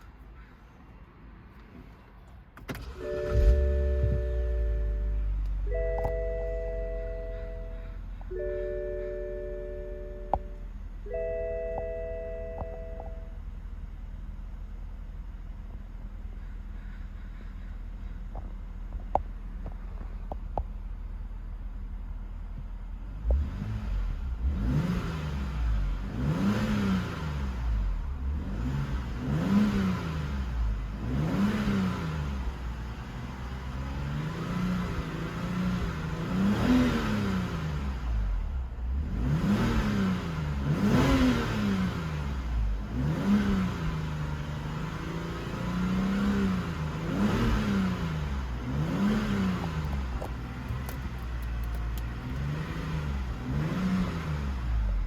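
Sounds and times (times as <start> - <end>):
car engine revving: 2.8 - 13.3, 23.1 - 55.0.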